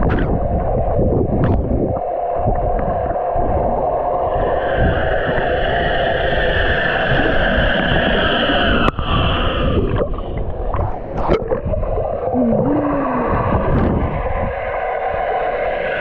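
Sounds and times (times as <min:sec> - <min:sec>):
gurgling underwater noise: 0:00.0 - 0:16.0.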